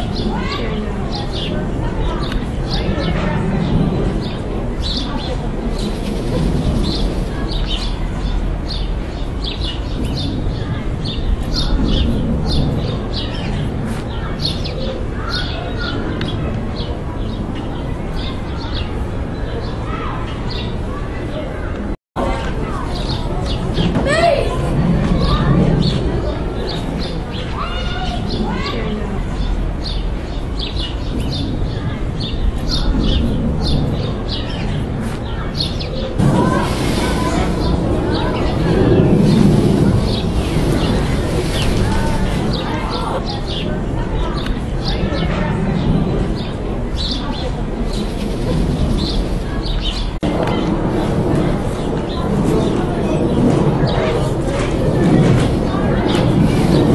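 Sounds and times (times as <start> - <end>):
steady low rumble: 0.0 - 20.2, 21.7 - 56.9
small birds chirping: 25.1 - 56.9.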